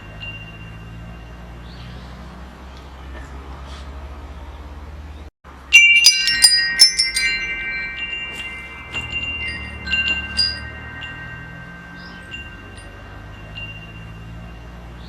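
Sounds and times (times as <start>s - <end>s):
metal wind chimes ringing: 0.0s - 2.4s, 5.5s - 15.0s.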